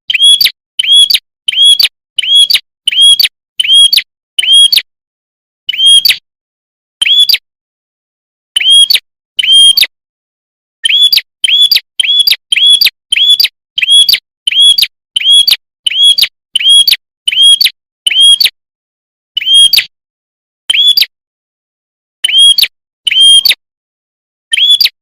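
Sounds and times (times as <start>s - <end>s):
bird chirp call: 0.1s - 4.9s, 5.7s - 6.2s, 7.0s - 7.5s, 8.5s - 10.0s, 10.8s - 18.6s, 19.4s - 19.9s, 20.7s - 21.2s, 22.2s - 23.6s, 24.5s - 25.0s.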